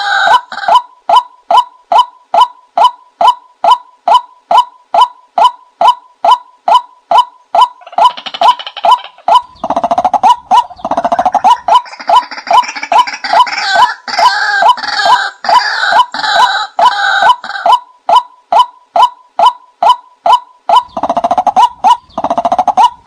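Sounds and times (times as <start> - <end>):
richer bird calls: 1.2 - 23.0
fast rattling bird trill: 5.8 - 13.8, 19.0 - 23.0.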